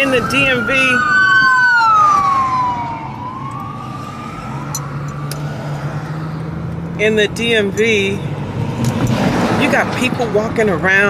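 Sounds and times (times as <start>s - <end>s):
emergency vehicle siren wailing: 0.0s - 7.0s
road noise inside car: 0.0s - 11.0s.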